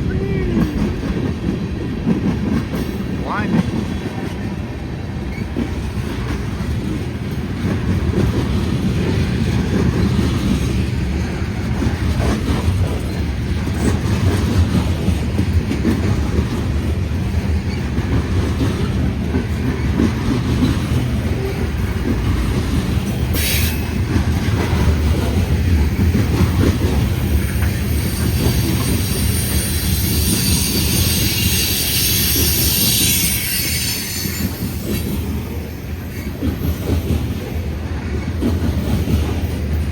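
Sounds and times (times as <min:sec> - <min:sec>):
train wheels rumbling on rail: 0:00.0 - 0:39.9
high-pitched wheel squeal: 0:28.7 - 0:34.6.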